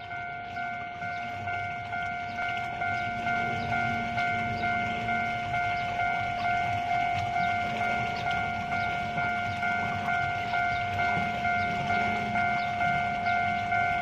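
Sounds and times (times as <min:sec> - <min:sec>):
level crossing warning bell: 0:00.0 - 0:14.0.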